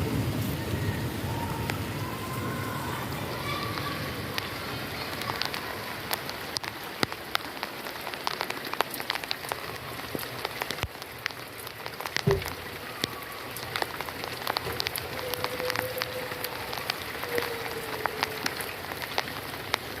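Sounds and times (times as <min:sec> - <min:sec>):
raindrops ticking on hard surface: 0:00.0 - 0:20.0
steady rain falling: 0:00.0 - 0:20.0
low thump: 0:12.2 - 0:12.6.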